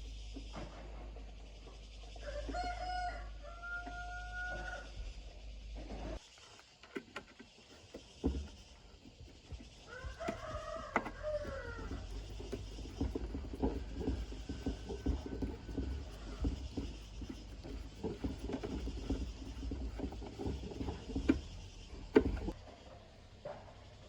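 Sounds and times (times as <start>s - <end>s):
hands working on parts: 5.9s - 22.6s.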